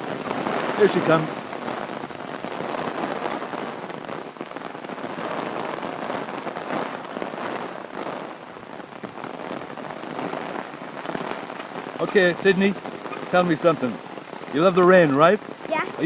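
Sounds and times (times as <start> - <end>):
rain patter: 0.0 - 16.0.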